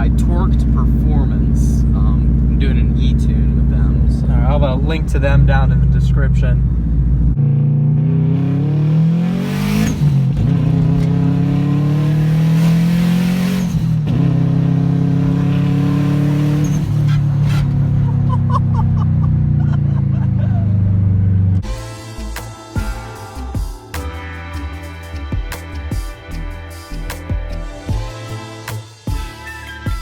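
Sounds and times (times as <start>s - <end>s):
turbocharged car engine accelerating: 0.0s - 21.7s.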